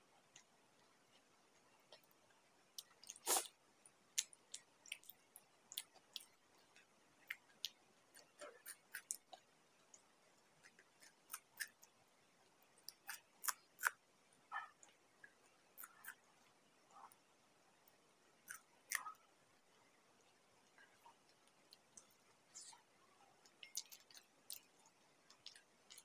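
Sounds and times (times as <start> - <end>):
chewing and crunching: 2.8 - 3.5, 4.1 - 12.0, 12.8 - 16.3, 23.4 - 26.0.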